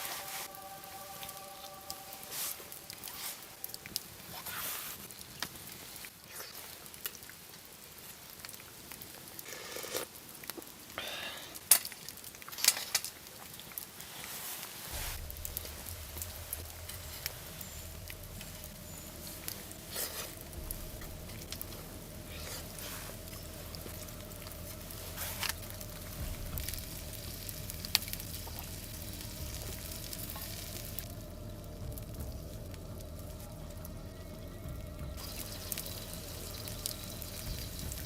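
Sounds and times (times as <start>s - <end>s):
food sizzling in a pan: 0.0s - 6.2s, 35.2s - 38.0s
pops and crackles: 11.6s - 14.0s, 14.9s - 31.1s.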